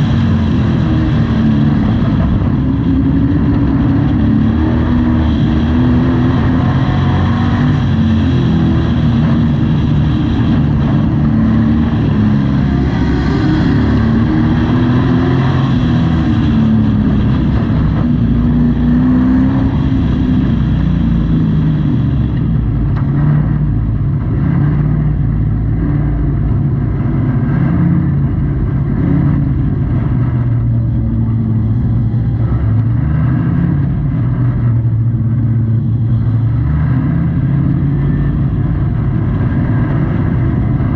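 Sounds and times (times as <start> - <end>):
truck engine revving: 0.0 - 40.9.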